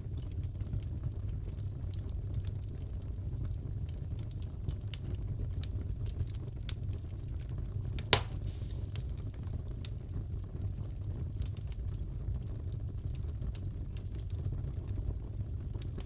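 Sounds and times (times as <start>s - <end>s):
low rumble of burning: 0.0s - 16.0s
fireplace crackling: 6.0s - 10.2s
loud pop: 8.0s - 9.0s.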